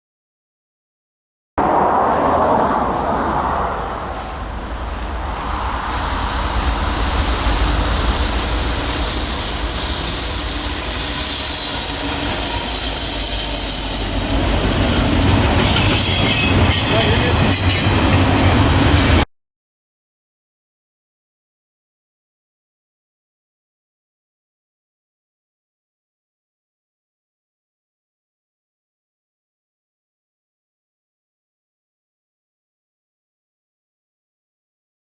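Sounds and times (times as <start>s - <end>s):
wheels squealing: 1.6s - 18.9s
wheels hissing on rail: 1.6s - 19.2s
train rumble: 1.6s - 19.3s.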